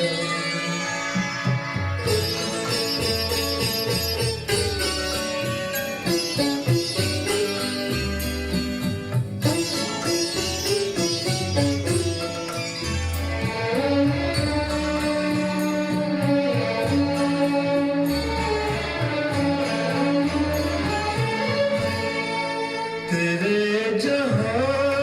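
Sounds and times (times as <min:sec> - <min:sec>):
instrumental melody: 0:00.0 - 0:24.6
held bass notes: 0:01.4 - 0:23.1.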